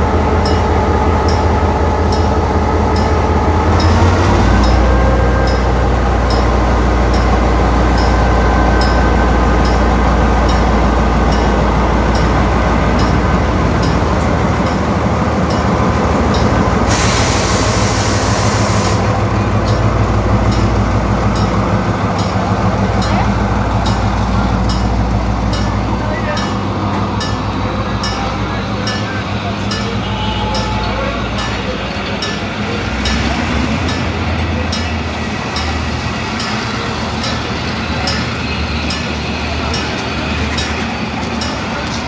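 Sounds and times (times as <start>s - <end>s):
train rumbling: 0.0s - 42.0s
train wheels clicking: 0.2s - 42.0s
burst of hiss: 16.9s - 19.1s.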